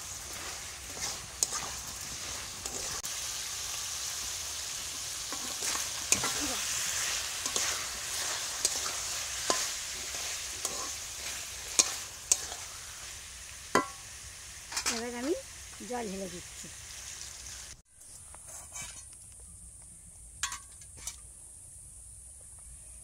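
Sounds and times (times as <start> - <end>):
curry sizzling in metal pan: 0.0 - 19.0, 20.4 - 21.3
metal spatula scraping and knocking: 0.3 - 3.0, 7.4 - 9.8, 10.6 - 11.0, 13.8 - 14.0, 18.2 - 19.2.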